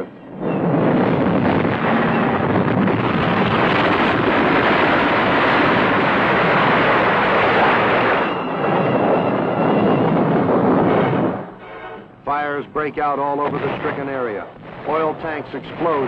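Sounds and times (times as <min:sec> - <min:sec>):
loud steady rushing noise: 0:00.0 - 0:16.0.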